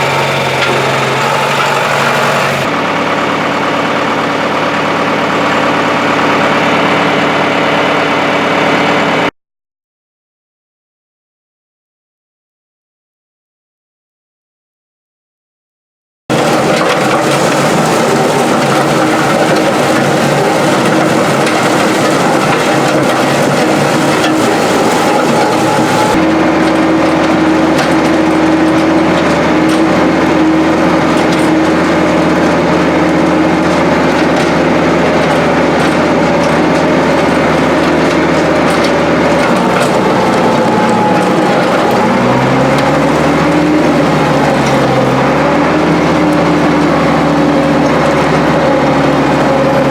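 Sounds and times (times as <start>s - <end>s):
tractor diesel engine running: 0.0s - 9.3s, 16.3s - 49.9s
gravel and rock crunching: 16.3s - 49.9s.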